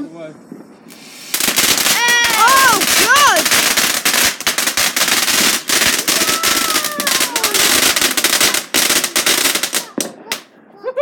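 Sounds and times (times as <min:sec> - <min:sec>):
firework bangs and crackles: 0:00.9 - 0:10.5
falling firework whistle: 0:05.8 - 0:08.1.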